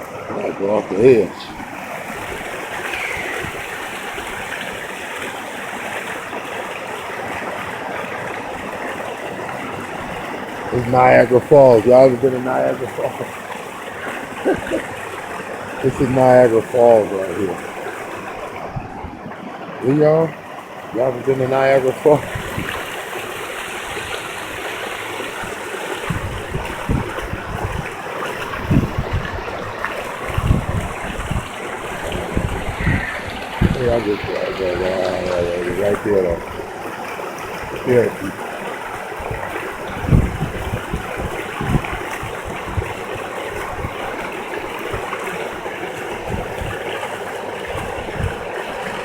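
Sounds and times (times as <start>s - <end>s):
river water rushing over a drop: 0.0s - 49.0s
wind buffeting microphone: 1.0s - 4.9s, 14.0s - 19.3s, 21.3s - 49.0s.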